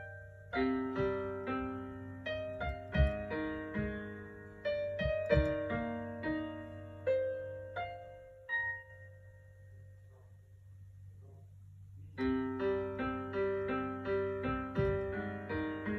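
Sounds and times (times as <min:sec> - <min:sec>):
gentle piano melody: 0:00.0 - 0:10.5, 0:12.1 - 0:15.9.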